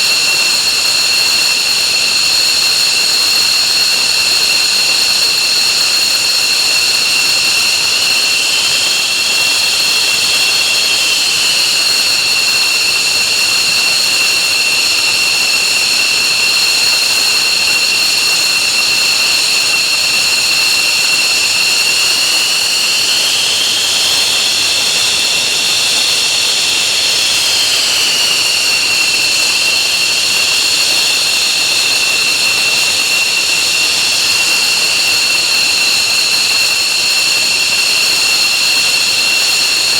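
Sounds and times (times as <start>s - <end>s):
jet engines high whine: 0.0s - 39.9s
jet engine rushing noise: 6.7s - 37.0s.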